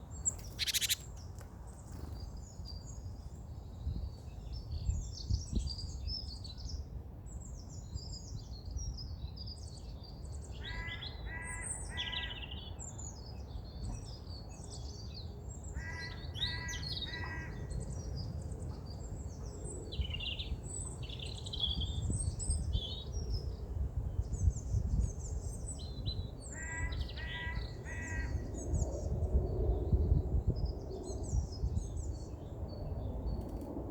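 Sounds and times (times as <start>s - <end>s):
songbirds chirping and trilling: 0.0s - 33.9s
harsh repeated bird calls: 0.3s - 1.1s.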